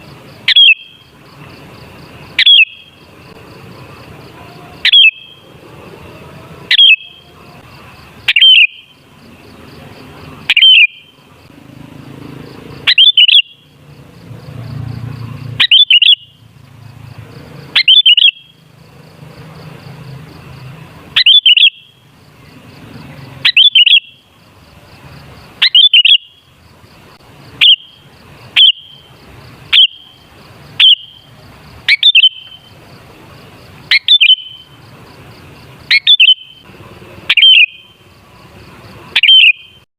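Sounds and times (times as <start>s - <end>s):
bird calling sharp notes: 0.5s - 1.0s, 2.3s - 3.0s, 4.8s - 5.4s, 6.7s - 7.2s, 8.2s - 9.0s, 10.4s - 11.2s, 12.8s - 13.6s, 15.5s - 16.4s, 17.7s - 18.6s, 21.1s - 22.0s, 23.4s - 24.2s, 25.6s - 26.4s, 27.5s - 29.1s, 29.7s - 30.2s, 30.8s - 32.7s, 33.9s - 34.7s, 35.8s - 36.6s, 37.3s - 38.0s, 39.1s - 39.8s.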